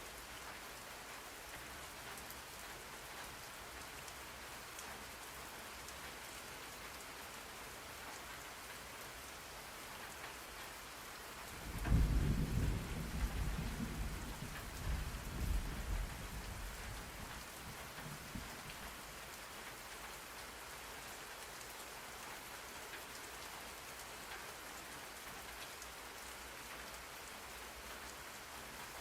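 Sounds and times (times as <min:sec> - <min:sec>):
steady rain: 0:00.0 - 0:29.0
thunder rumble: 0:11.6 - 0:18.9.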